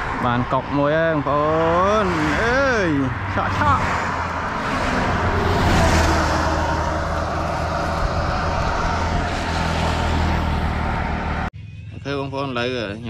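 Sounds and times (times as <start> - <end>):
rushing noise: 1.4 - 11.5.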